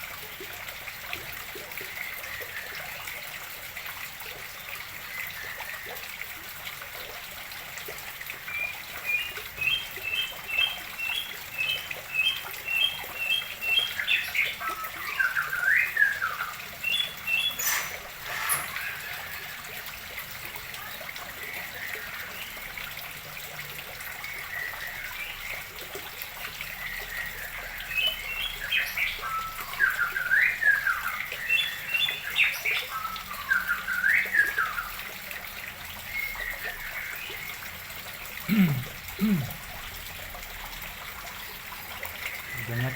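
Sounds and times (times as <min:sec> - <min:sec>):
water trickling into pond: 0:00.0 - 0:42.9
songbirds chirping: 0:08.6 - 0:19.5, 0:42.3 - 0:42.9.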